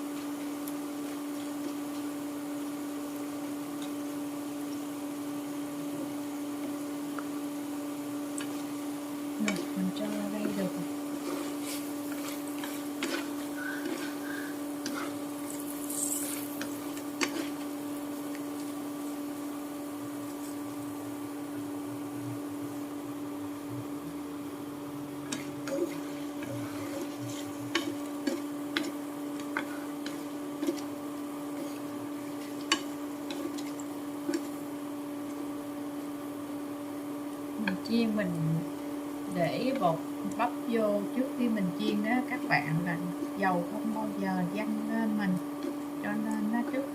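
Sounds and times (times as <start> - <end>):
fish frying in oil: 0.0 - 21.4
low hum: 19.9 - 35.4.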